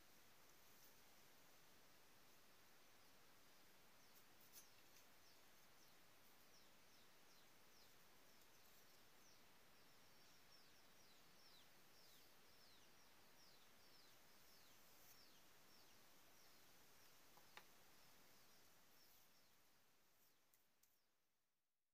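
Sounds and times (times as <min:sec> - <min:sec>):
faint bird chirps: 0:02.8 - 0:21.3
faint click: 0:17.3 - 0:17.7, 0:20.5 - 0:21.0.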